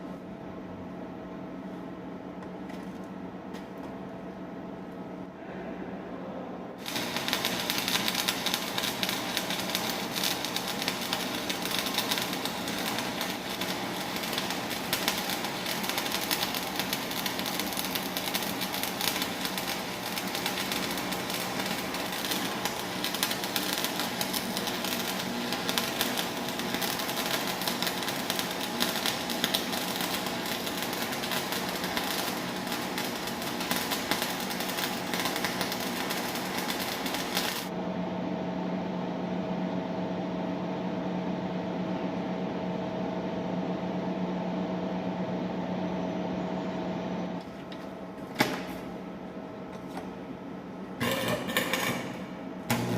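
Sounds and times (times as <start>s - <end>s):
steady low hum: 0.0s - 52.9s
welding arc crackle and sizzle: 6.8s - 37.7s, 51.0s - 52.9s.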